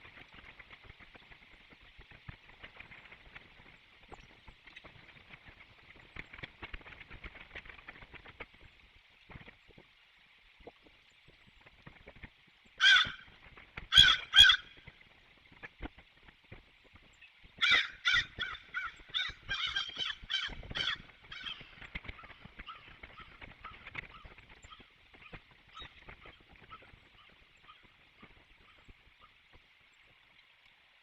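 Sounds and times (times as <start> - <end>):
crow cawing: 12.8 - 13.2, 13.9 - 14.7, 17.6 - 21.6.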